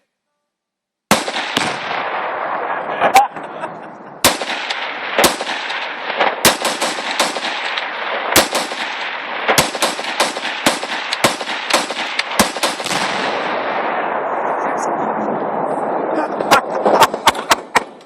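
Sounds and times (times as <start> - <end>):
rifle shots: 1.1 - 3.6, 4.2 - 14.4.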